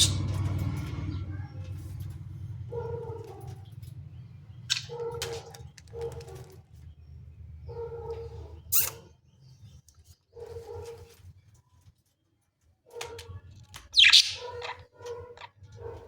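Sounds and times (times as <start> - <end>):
budgerigar high chirps: 0.0 - 0.3, 14.0 - 14.8.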